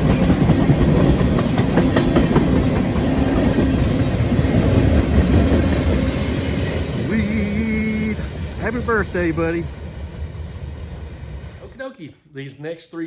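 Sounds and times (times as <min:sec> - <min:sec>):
wheels clicking over rail joints: 0:00.0 - 0:06.0
train wheels rumbling on rails: 0:00.0 - 0:11.8.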